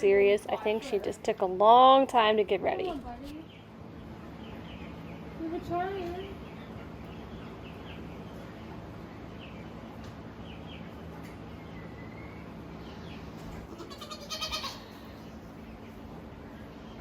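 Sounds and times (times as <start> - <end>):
steady low hum: 0.0 - 17.0
goat bleating: 13.6 - 15.0.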